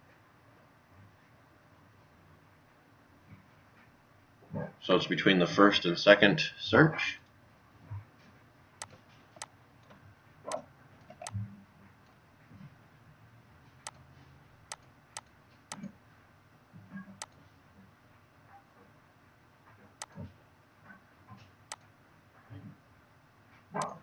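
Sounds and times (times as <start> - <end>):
computer mouse clicks: 14.7 - 15.9.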